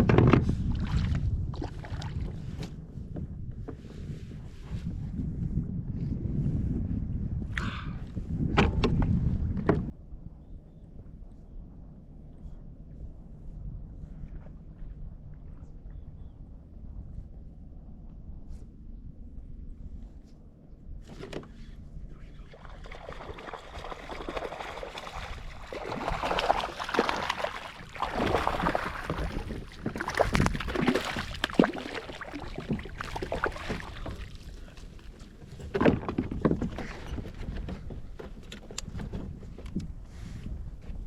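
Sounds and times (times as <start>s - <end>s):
water splashing against kayak: 0.0s - 2.8s, 21.0s - 39.6s.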